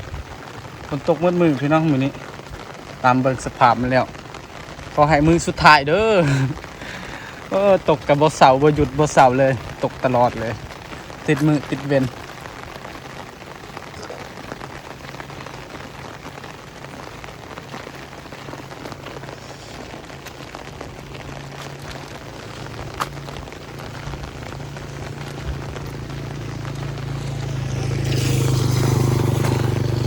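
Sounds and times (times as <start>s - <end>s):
rain falling on surfaces: 0.0s - 30.0s
low engine hum: 14.8s - 30.0s.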